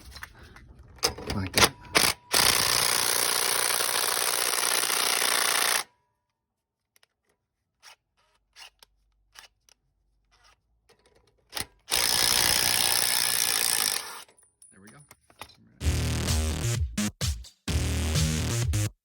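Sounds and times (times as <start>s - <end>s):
impact wrench hammering: 11.6s - 14.3s.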